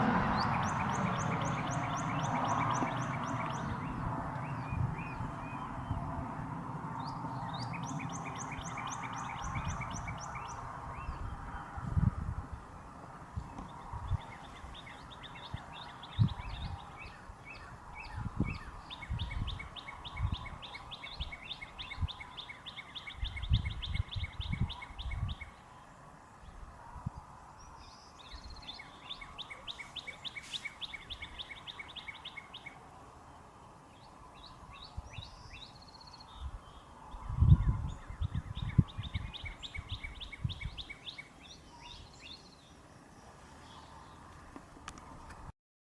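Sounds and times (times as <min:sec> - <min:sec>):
bird singing whistled notes: 0:00.3 - 0:06.0, 0:07.0 - 0:11.3, 0:14.0 - 0:25.6, 0:27.7 - 0:32.8, 0:33.9 - 0:42.8.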